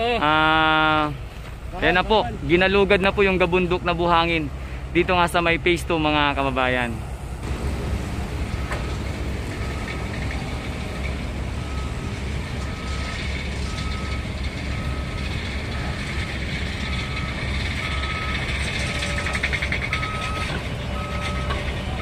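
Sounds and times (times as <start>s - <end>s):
low engine rumble: 0.0s - 22.0s
reversing alarm beeping: 8.5s - 22.0s.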